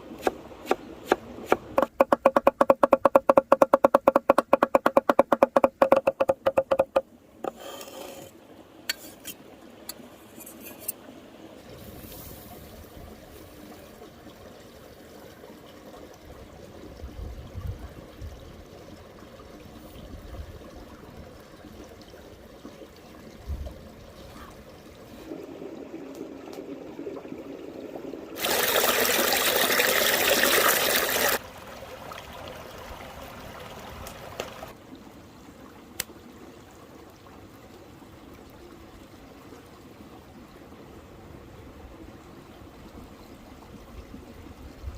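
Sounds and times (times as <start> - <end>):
river water running: 0.0 - 44.8
soft knocks: 1.8 - 7.1.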